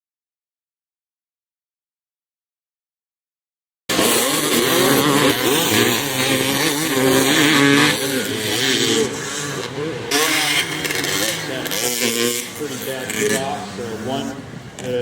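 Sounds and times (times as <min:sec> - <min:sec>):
dirt bike engines revving: 0:03.9 - 0:15.0.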